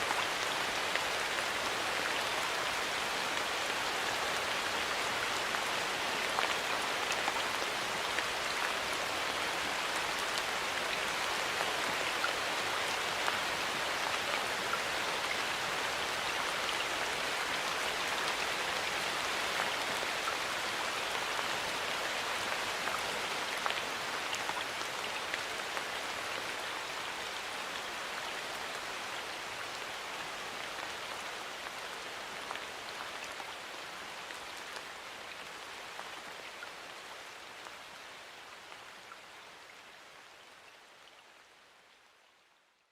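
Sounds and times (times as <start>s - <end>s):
rain falling in forest: 0.0s - 42.9s.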